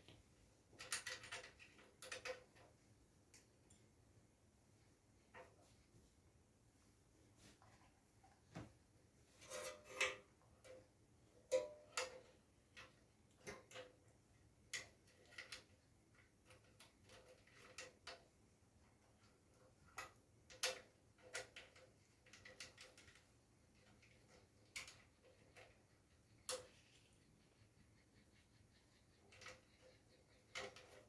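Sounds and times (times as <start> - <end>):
small tools clicking and tapping: 0.0 - 3.9, 9.4 - 27.5, 28.7 - 31.0.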